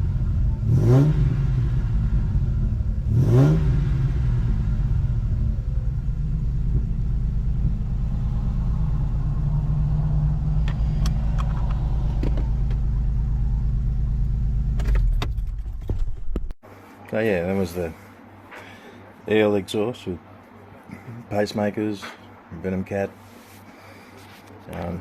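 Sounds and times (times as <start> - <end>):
car engine idling: 0.0 - 16.3.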